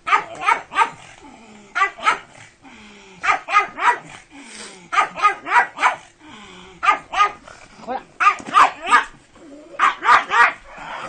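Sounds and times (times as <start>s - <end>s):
dog barking: 0.0s - 1.0s, 1.8s - 2.3s, 3.2s - 4.1s, 4.9s - 6.1s, 6.8s - 7.4s, 8.2s - 9.2s, 9.8s - 10.7s.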